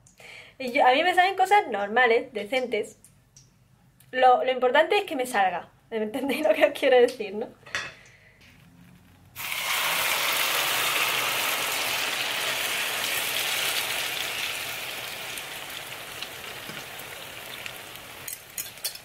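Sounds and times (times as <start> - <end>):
egg and potato sizzling in oil: 9.4 - 19.0.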